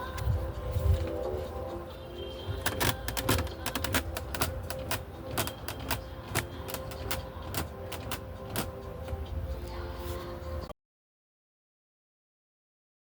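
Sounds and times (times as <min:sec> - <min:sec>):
sharp mechanical clicks: 0:02.6 - 0:08.9.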